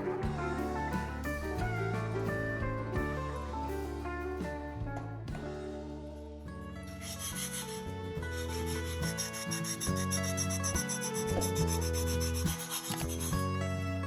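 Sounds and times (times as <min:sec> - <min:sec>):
background music: 0:00.0 - 0:14.0
rapid rasping strokes: 0:07.0 - 0:13.4.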